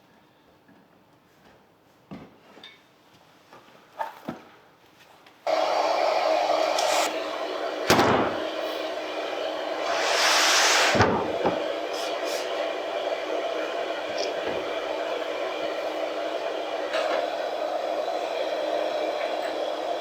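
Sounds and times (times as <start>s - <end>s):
power tool running: 5.5s - 20.0s.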